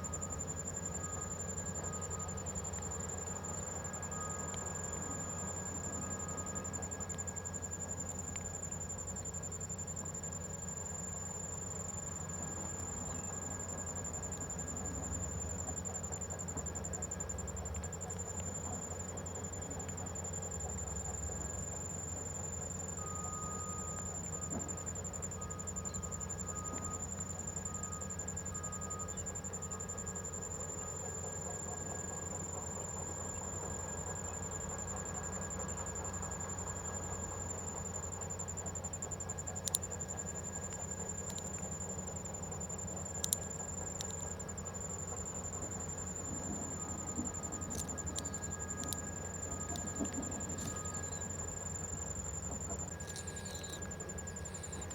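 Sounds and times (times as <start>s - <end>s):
high-pitched insect trill: 0.0s - 54.9s
low steady hum: 32.4s - 54.9s.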